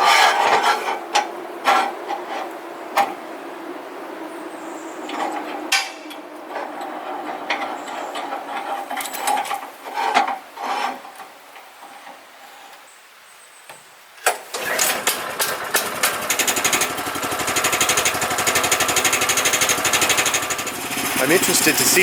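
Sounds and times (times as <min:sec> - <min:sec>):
sawmill gasoline engine running: 0:14.5 - 0:22.0.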